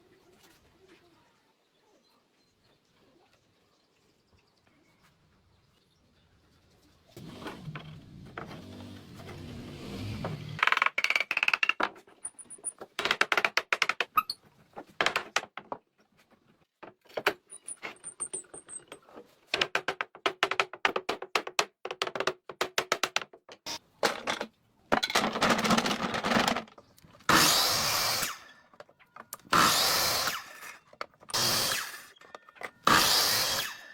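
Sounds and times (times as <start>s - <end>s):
rapid clicks and taps on wood: 12.8s - 14.2s, 19.5s - 23.7s
power tool bursts: 27.3s - 28.5s, 29.5s - 33.9s.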